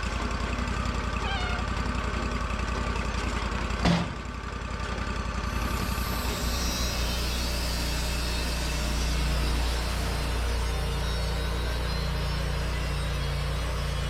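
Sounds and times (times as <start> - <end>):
sawmill engine running: 0.0 - 14.0
sharp clunk: 3.8 - 4.2.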